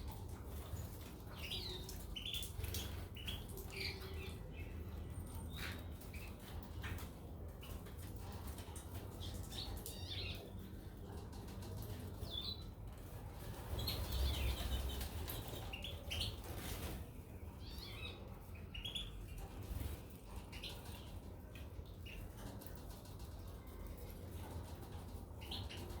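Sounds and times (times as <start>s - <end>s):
birds chirping: 0.6s - 8.1s, 13.5s - 16.6s, 17.2s - 22.5s.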